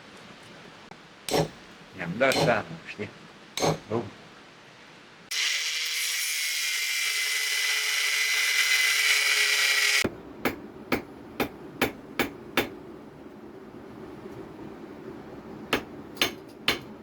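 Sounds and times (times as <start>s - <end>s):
angle grinder cutting steel: 5.3s - 10.0s.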